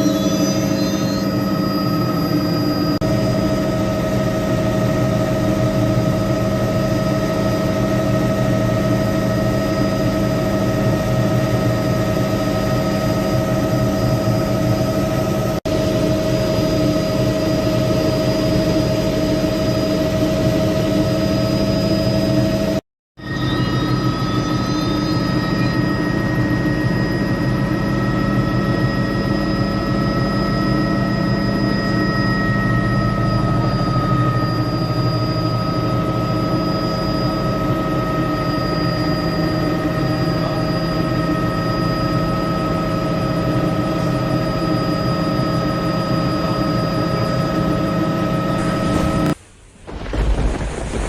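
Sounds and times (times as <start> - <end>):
helicopter running: 0.0 - 49.4.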